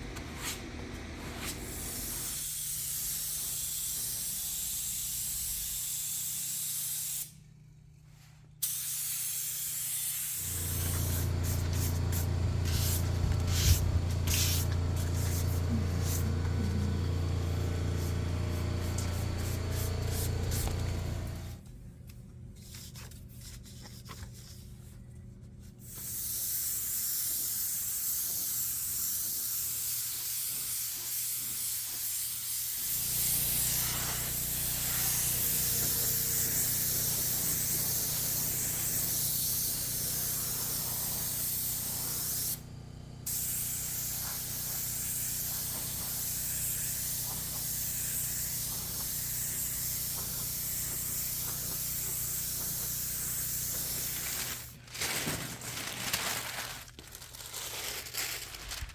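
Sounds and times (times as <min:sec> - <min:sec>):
spray gun hissing: 0:08.6 - 0:21.6, 0:26.0 - 0:42.6, 0:43.3 - 0:54.7
low hum: 0:10.5 - 0:21.6.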